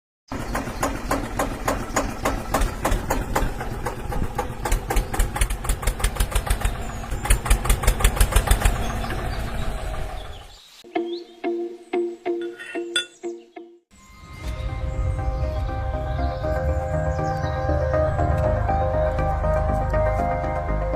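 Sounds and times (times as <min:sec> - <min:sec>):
engine chugging: 0:00.3 - 0:10.6.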